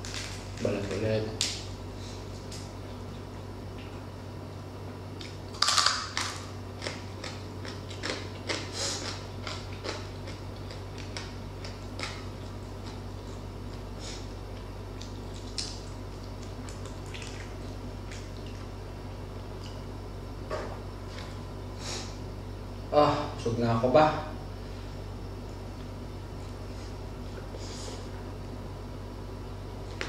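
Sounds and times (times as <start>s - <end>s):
crunching of crispy pork skin: 0.0s - 2.8s, 5.1s - 18.8s.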